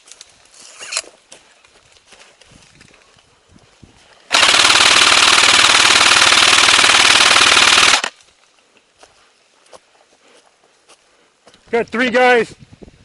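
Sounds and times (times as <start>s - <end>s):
airsoft rifle full-auto burst: 4.3s - 8.1s.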